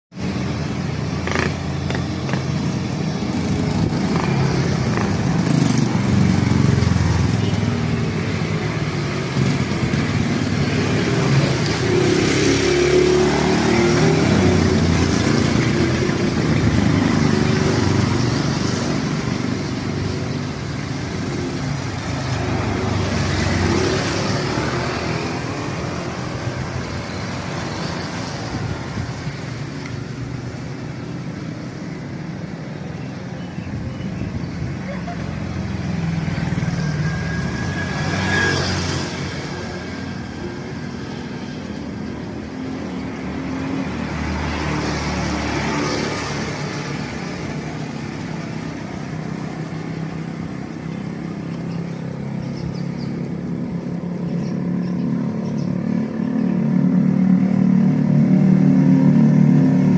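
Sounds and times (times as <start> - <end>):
mountain bike road and wind noise: 0.1 - 59.9.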